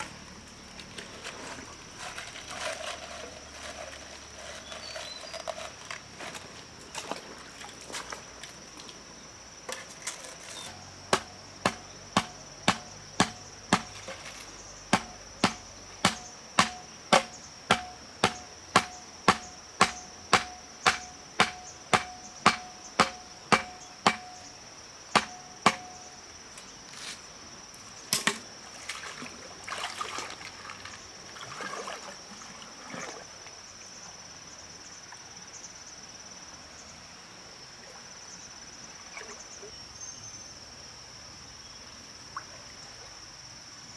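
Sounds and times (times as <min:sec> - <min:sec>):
cricket chirring: 0:00.0 - 0:36.9
chopping wood: 0:10.6 - 0:24.6, 0:25.2 - 0:26.2
loud knock: 0:11.2 - 0:14.0, 0:15.0 - 0:24.5, 0:25.2 - 0:26.0.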